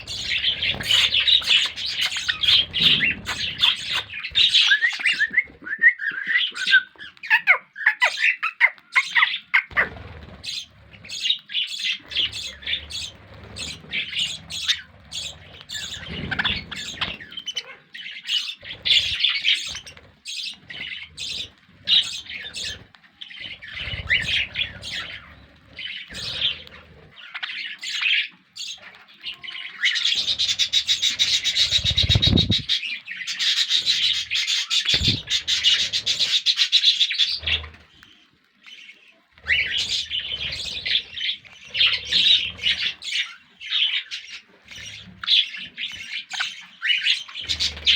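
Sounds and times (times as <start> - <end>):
parrots chirping and squawking: 0.0 - 47.9.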